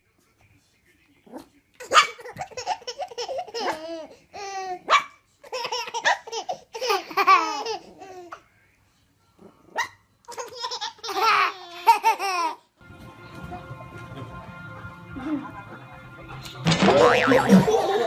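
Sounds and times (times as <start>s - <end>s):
baby laughing: 2.2s - 4.8s
dog barking: 4.8s - 5.2s.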